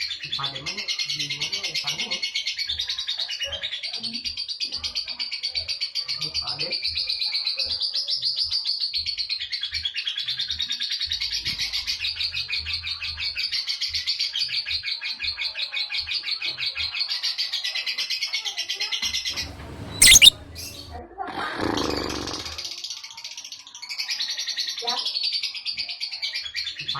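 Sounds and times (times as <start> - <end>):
lovebird rapid chatter: 19.4 - 20.8.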